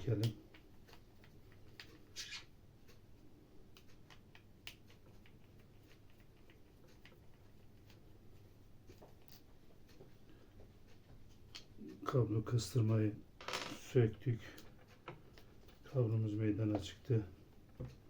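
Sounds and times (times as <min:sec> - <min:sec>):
small clicks and scrapes of hand work: 0:00.0 - 0:03.0, 0:03.7 - 0:11.9, 0:14.5 - 0:15.9.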